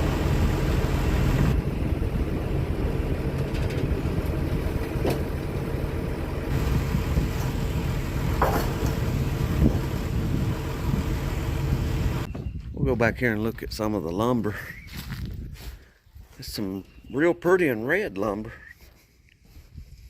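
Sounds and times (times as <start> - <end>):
engine idling: 0.0 - 12.3.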